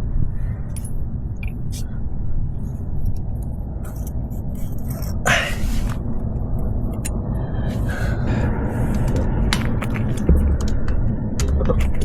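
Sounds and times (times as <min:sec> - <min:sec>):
road traffic rumble: 0:00.0 - 0:12.0
loud hissing rush: 0:05.2 - 0:06.1.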